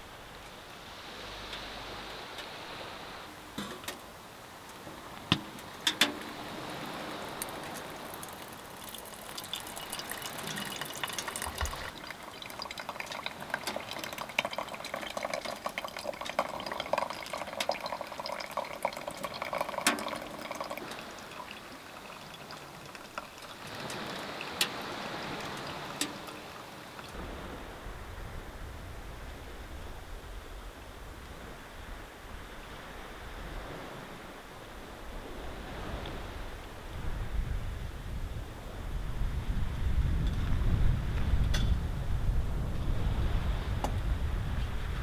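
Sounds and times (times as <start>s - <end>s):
hot water pouring and trickling: 1.0s - 27.6s
water dripping into metal cup: 5.3s - 27.2s.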